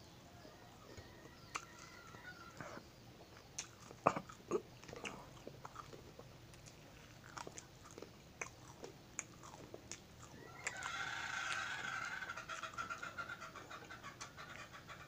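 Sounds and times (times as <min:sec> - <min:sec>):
person chewing crackers: 0:02.5 - 0:11.8.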